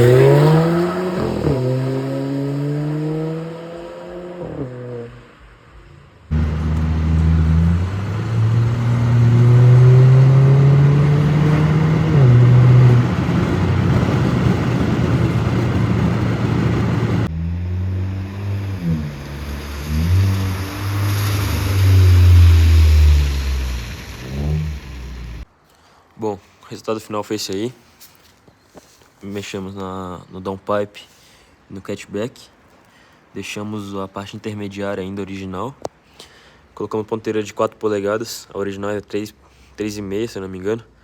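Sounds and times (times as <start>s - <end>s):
car engine revving: 0.0s - 5.6s, 6.3s - 25.5s.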